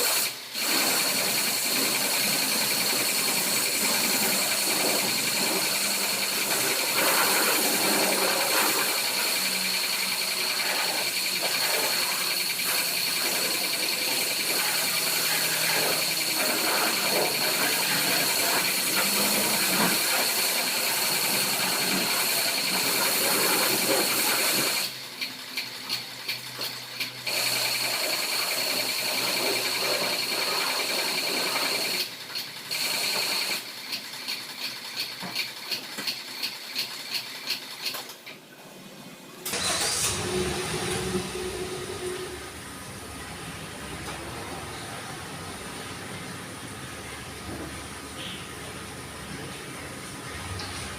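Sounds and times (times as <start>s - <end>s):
pressure washer spraying water: 0.0s - 25.0s, 27.3s - 35.1s, 39.5s - 42.6s.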